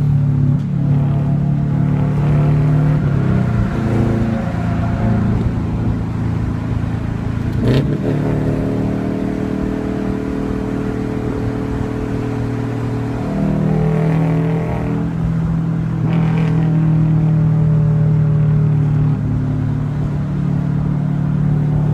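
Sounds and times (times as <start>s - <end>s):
car engine driving: 0.0s - 21.9s.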